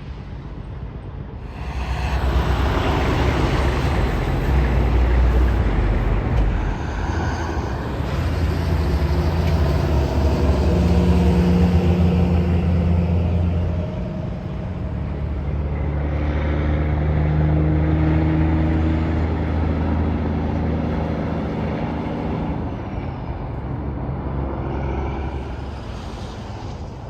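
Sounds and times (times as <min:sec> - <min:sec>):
highway traffic passing at speed: 0:00.0 - 0:27.0
low engine drone: 0:00.0 - 0:27.0.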